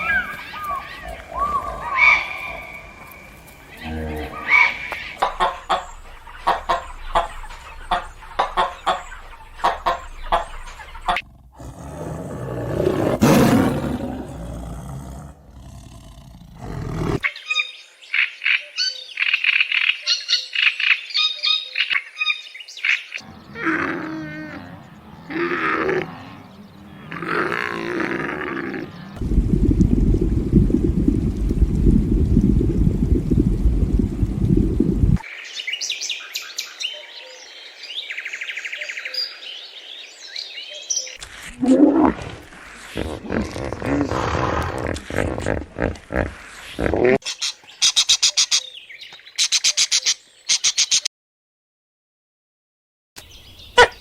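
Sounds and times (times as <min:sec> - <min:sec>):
sharp animal chirps and clicks: 0:49.4 - 0:51.1.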